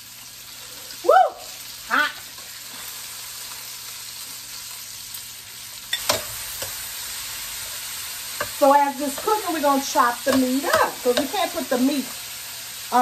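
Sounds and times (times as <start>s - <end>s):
meat sizzling in a skillet: 0.0s - 13.0s
spatula knocking on pan: 10.3s - 11.4s.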